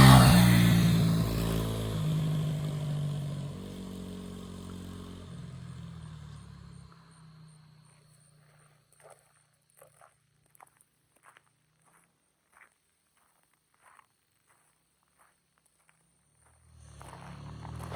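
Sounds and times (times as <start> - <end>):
motorcycle engine riding away: 0.0 - 9.1, 16.3 - 17.9.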